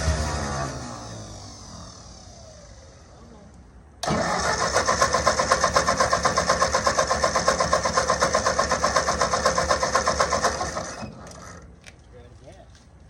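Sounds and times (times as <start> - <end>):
tractor engine running and dying: 0.0 - 3.4, 4.0 - 11.7.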